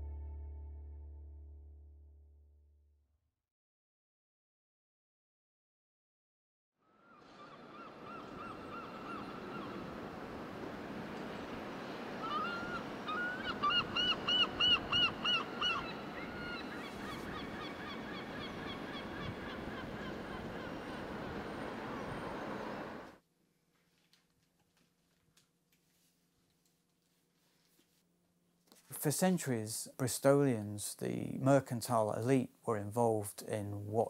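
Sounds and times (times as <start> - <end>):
bird calling: 7.0 - 10.0, 11.2 - 23.1
outdoor background hiss: 7.0 - 34.0.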